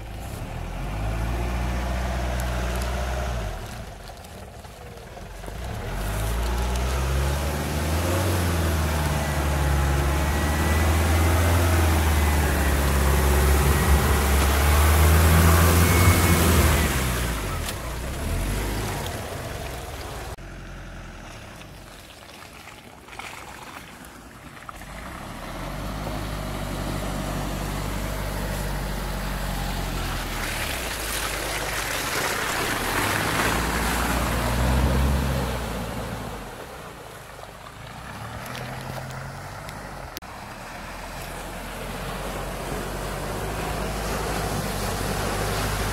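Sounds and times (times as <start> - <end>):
van engine driving over rough ground: 0.0 - 22.2, 24.0 - 45.9.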